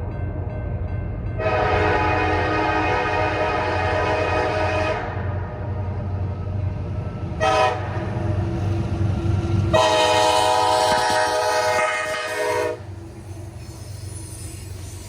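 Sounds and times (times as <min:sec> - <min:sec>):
train rumble: 0:00.0 - 0:15.0
locomotive air horn blasts: 0:01.4 - 0:05.1, 0:07.4 - 0:07.9, 0:09.7 - 0:12.8.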